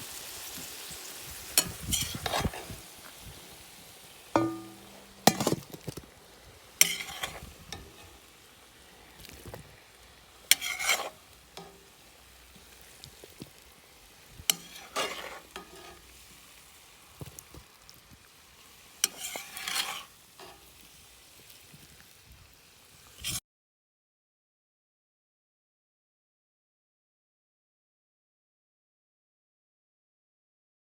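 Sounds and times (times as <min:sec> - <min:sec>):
utensil scraping a pot: 0:01.6 - 0:03.1, 0:04.4 - 0:06.0, 0:06.7 - 0:13.5, 0:14.1 - 0:16.7, 0:18.9 - 0:20.8, 0:23.2 - 0:23.4.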